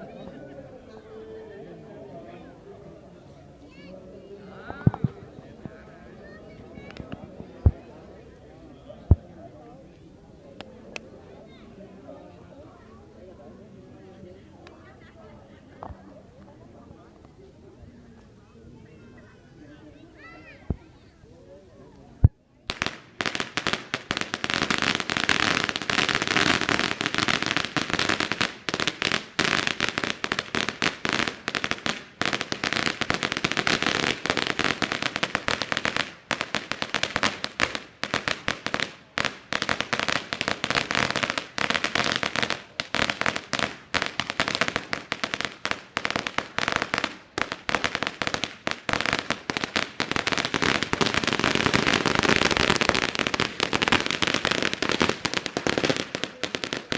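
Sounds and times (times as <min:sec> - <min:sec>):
firecrackers going off: 0:22.6 - 0:56.9.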